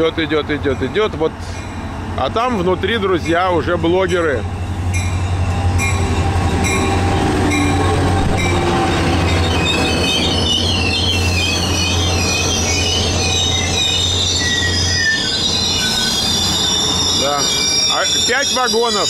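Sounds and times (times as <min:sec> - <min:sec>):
wheel and brake squeal: 0:08.4 - 0:19.0.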